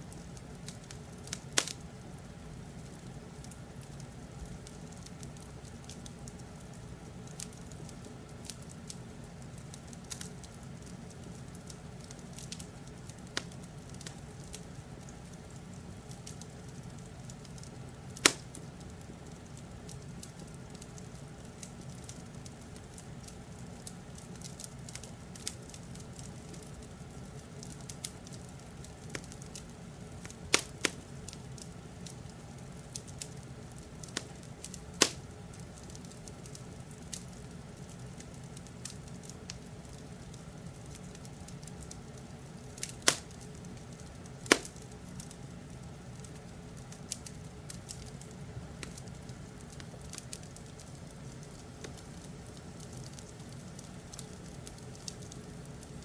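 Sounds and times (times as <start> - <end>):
wood fire crackling: 0.0 - 56.0
sharp pops of fire: 0.1 - 2.0, 9.6 - 45.4, 46.1 - 56.0.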